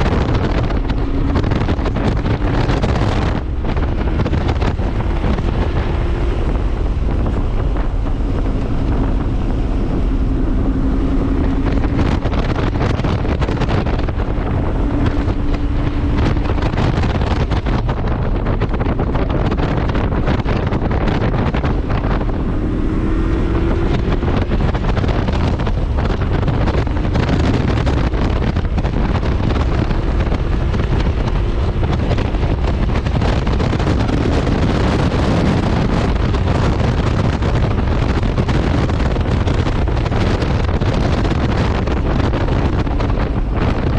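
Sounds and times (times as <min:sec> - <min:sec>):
car engine: 0:00.0 - 0:43.9
wind buffeting microphone: 0:00.0 - 0:43.9.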